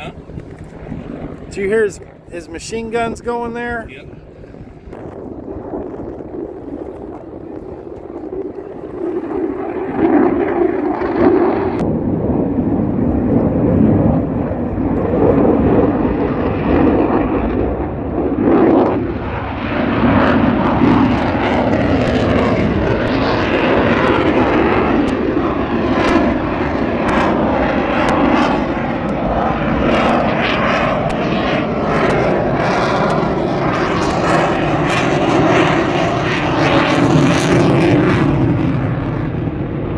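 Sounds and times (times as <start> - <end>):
airplane engine overhead: 0.0 - 39.9.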